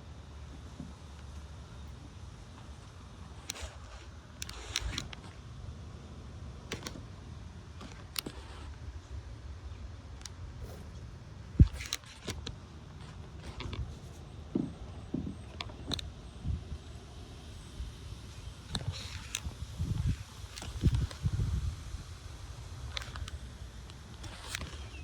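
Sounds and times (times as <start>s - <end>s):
wind rumbling on microphone: 10.5s - 12.0s, 15.3s - 23.3s.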